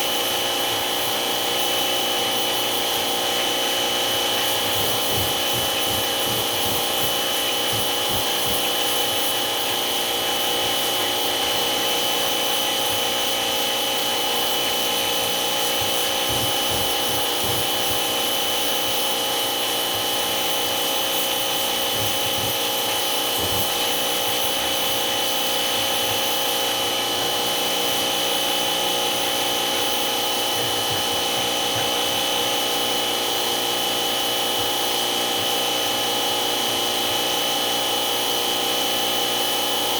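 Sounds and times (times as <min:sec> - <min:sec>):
rubbing noise: 0:04.3 - 0:11.1, 0:15.6 - 0:18.5, 0:21.8 - 0:24.9.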